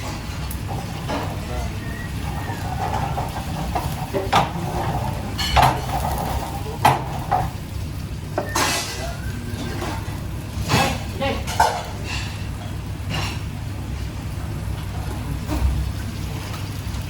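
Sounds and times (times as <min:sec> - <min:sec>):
utensils clinking against pots: 0:00.0 - 0:13.6.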